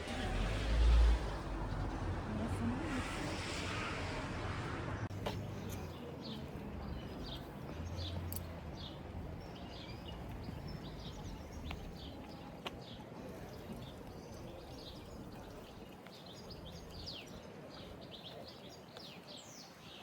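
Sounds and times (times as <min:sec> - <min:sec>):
traffic or outdoor ambience: 0:00.0 - 0:20.0
small birds chirping: 0:05.1 - 0:20.0.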